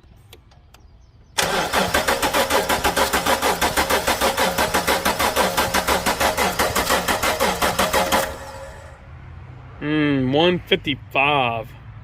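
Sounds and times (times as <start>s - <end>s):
engine starter cranking: 1.4s - 9.0s.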